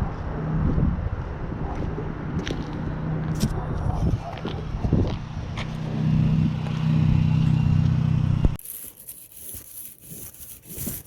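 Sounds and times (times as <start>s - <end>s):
car exhaust droning: 0.0s - 8.6s
faint scraping and rubbing: 8.6s - 11.0s.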